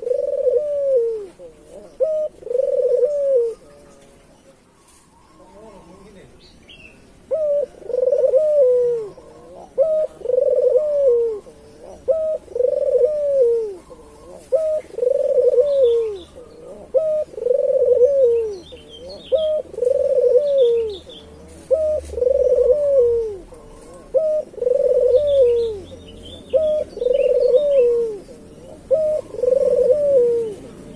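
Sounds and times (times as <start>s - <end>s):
dove cooing: 0.0s - 30.9s
small birds chirping: 0.0s - 30.9s.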